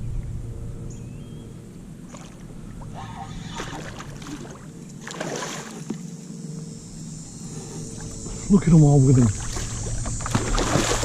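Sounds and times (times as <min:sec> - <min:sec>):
water splashing beside kayak: 0:02.0 - 0:06.1, 0:09.1 - 0:11.0.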